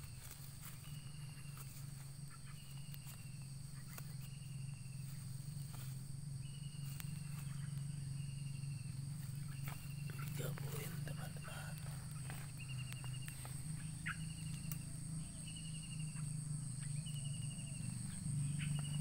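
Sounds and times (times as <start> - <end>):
high insect-like drones: 0.0 - 19.0
steady low hum: 0.0 - 19.0.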